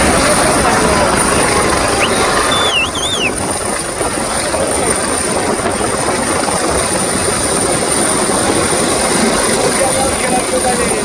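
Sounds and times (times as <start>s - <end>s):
helicopter rotor and engine: 0.0s - 11.0s
short warbling whistle: 1.9s - 3.4s.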